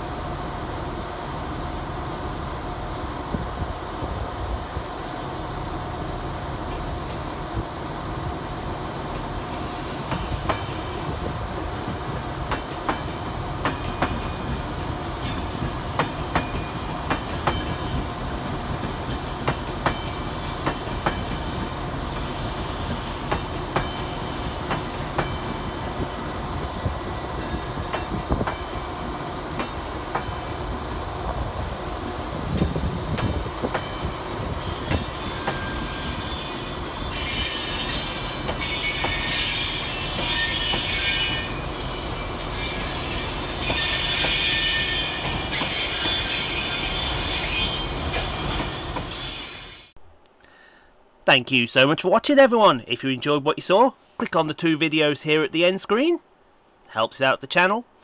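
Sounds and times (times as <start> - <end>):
train rumble: 0.0 - 41.5
train wheels clicking over rail joints: 9.1 - 28.8
high wheel squeal: 34.6 - 49.9.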